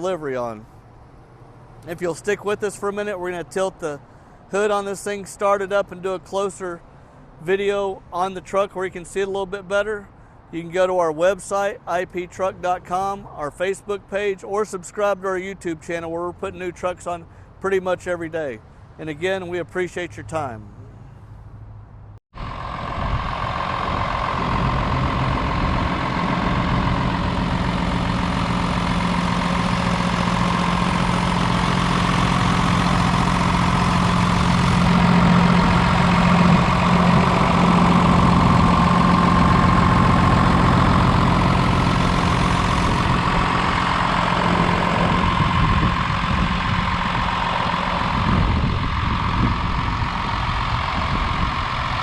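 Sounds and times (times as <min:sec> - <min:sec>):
diesel truck idling: 0:22.4 - 0:52.0.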